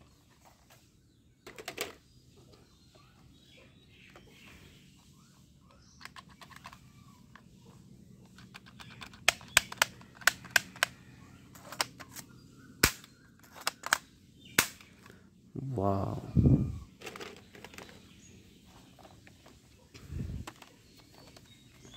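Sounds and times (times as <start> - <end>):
plastic toy gun clicking: 8.3 - 10.9.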